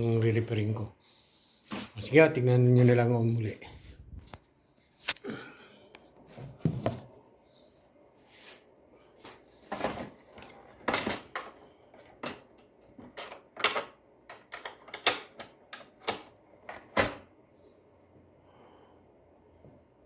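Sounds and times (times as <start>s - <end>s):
vacuum cleaner casing clicks and knocks: 10.8s - 17.3s.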